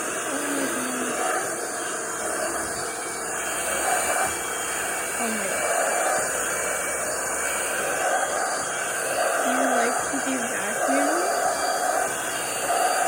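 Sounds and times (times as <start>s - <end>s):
vacuum cleaner motor whooshing: 0.0s - 13.0s.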